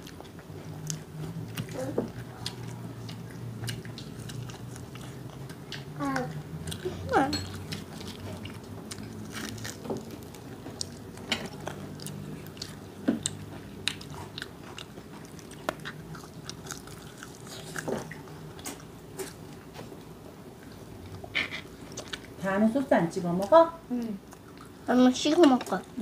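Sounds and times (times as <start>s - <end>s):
fried chicken crunching: 7.5s - 19.5s.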